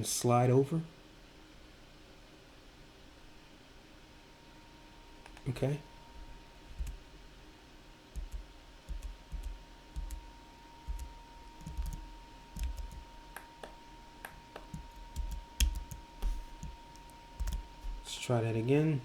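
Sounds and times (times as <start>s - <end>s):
mouse and keyboard clicking: 10.9s - 12.0s, 12.6s - 13.5s, 14.6s - 16.0s.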